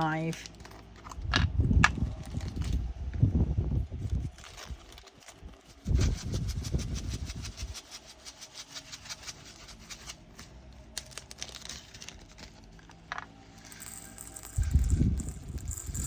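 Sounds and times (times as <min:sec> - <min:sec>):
tiny plastic beads rattling: 0:13.6 - 0:16.0.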